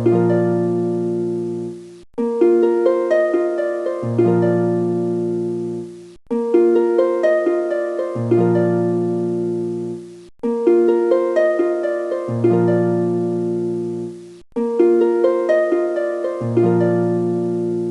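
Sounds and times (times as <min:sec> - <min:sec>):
plucked harp-like music: 0:00.0 - 0:17.9.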